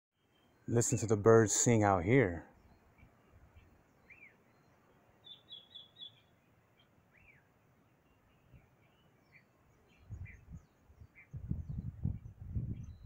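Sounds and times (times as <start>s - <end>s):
high bird chirps: 2.5s - 7.5s
whistled bird notes: 2.5s - 13.0s.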